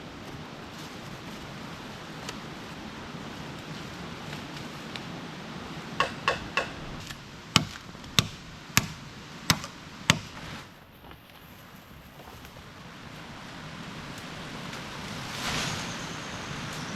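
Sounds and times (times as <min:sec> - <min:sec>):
hand tool knocking on bamboo: 0:06.0 - 0:10.4.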